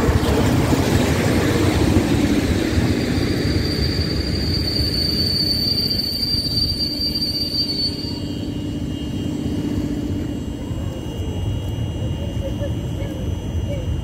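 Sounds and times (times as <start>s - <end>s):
train coaches rumbling: 0.0s - 14.0s
high-pitched wheel squeal: 2.7s - 10.8s.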